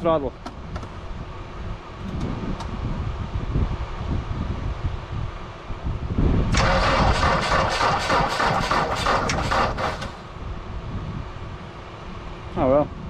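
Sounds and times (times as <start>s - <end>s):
starter motor cranking engine: 6.5s - 10.3s.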